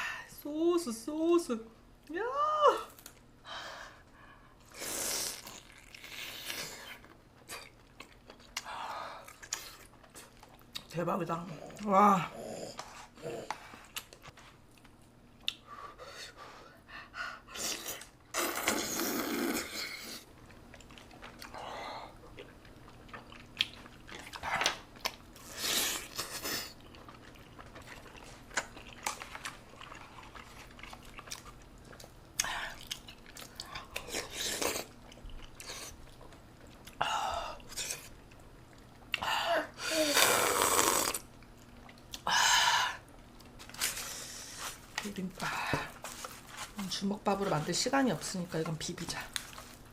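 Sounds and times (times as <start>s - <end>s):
chewing and mouth smacking: 5.3s - 10.9s, 13.8s - 15.6s, 20.4s - 21.6s, 22.2s - 37.0s, 41.3s - 42.2s.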